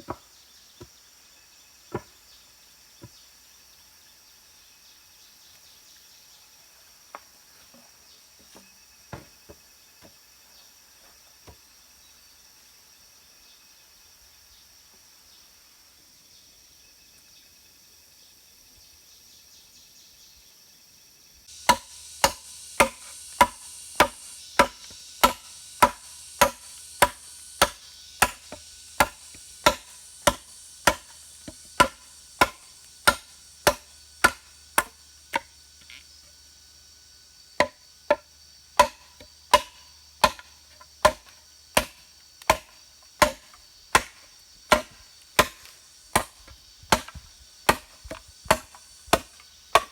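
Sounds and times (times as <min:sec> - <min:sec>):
faint insect chirring: 0:00.0 - 0:49.9
chopping strikes: 0:21.5 - 0:35.5, 0:37.6 - 0:38.2, 0:38.8 - 0:49.9.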